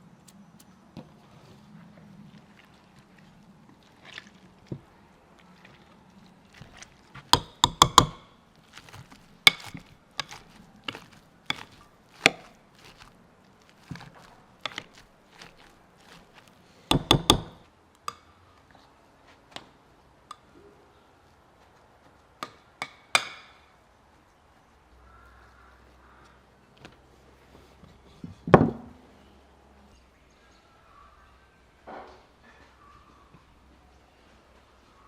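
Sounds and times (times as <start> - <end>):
knife chopping on wooden board: 7.2 - 13.1, 13.7 - 17.6.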